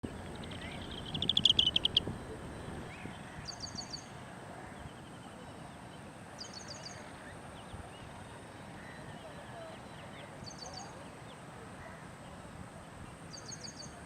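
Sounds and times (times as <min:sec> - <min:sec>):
faint high whine: 0:00.0 - 0:14.0
bird trilling: 0:00.1 - 0:03.0.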